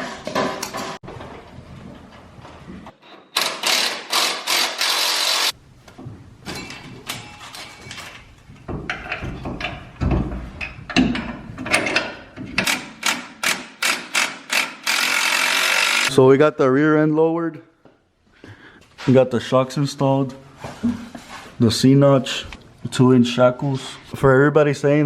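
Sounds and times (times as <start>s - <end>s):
rapid pulsing tool noise: 3.4s - 5.6s, 12.6s - 16.1s
metal clanks: 5.9s - 14.2s.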